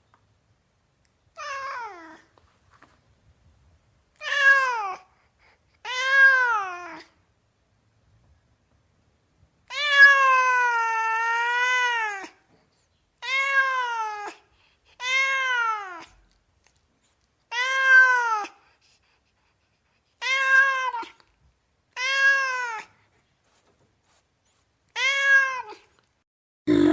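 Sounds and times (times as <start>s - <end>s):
cat meowing: 4.2s - 5.1s, 5.8s - 7.1s, 9.7s - 12.4s, 13.2s - 14.4s, 15.0s - 16.2s, 17.5s - 18.6s, 20.2s - 21.2s, 21.9s - 23.0s, 24.9s - 26.0s.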